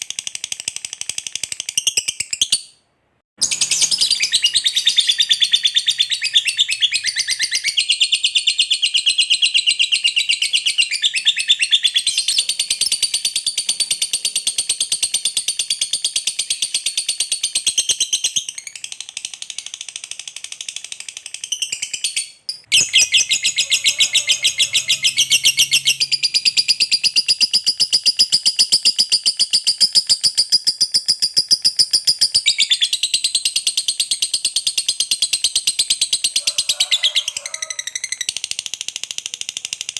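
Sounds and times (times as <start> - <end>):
lovebird chattering trill: 21.6 - 33.1.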